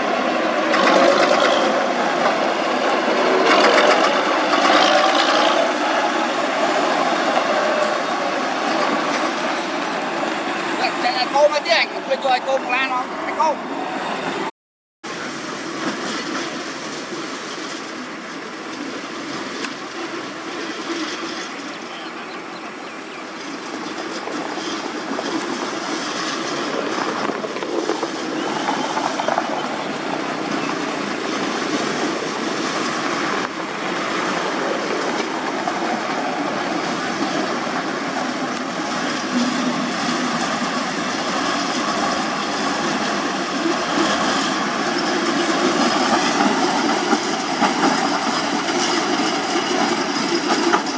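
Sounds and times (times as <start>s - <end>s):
heavy machinery running with clatter: 0.6s - 2.4s, 3.3s - 5.8s, 23.7s - 50.9s.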